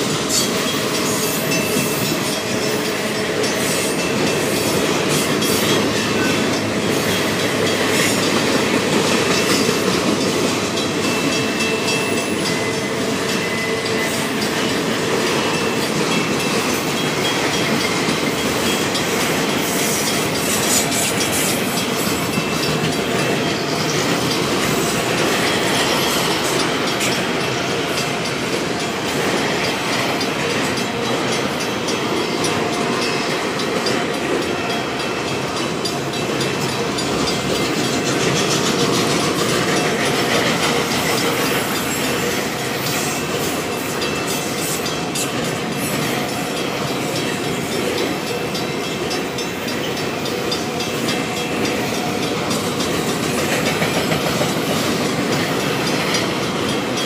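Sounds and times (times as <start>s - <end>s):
train wheels clattering over rail joints: 0.0s - 57.0s.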